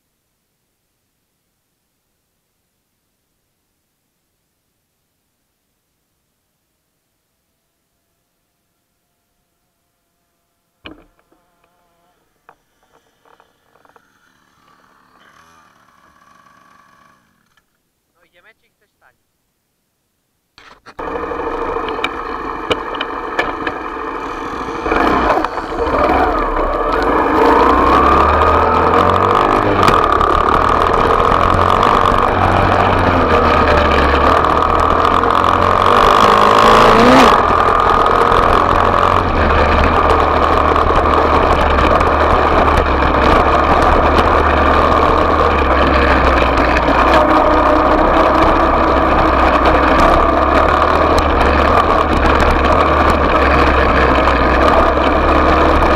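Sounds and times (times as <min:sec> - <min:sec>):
motorcycle engine revving: 0:09.0 - 0:17.6, 0:21.0 - 0:55.9.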